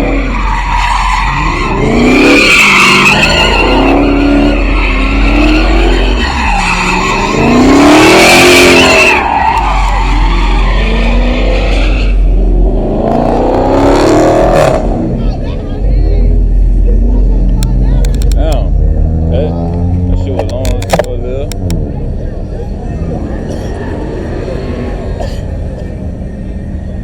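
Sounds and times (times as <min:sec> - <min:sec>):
tyres squealing: 0:00.0 - 0:12.2
car engine revving: 0:00.0 - 0:27.0.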